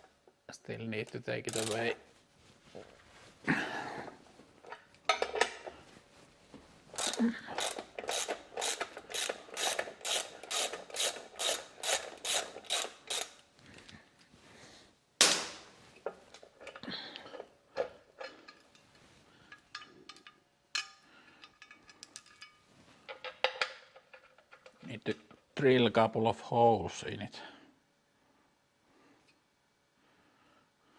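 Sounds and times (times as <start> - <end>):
clicks and knocks of parts: 1.4 - 2.0, 4.6 - 5.8, 7.0 - 14.0, 15.2 - 25.5
hand tool strokes: 6.9 - 13.4.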